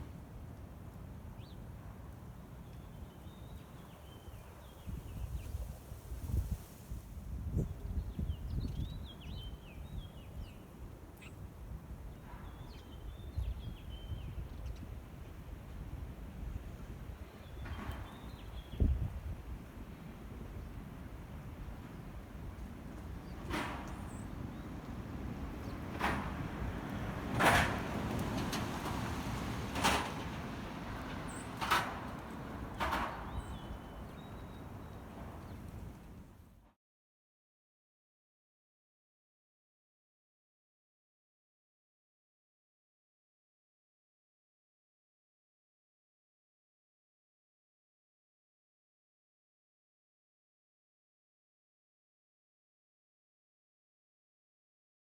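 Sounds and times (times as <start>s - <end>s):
wind buffeting microphone: 3.0s - 36.4s.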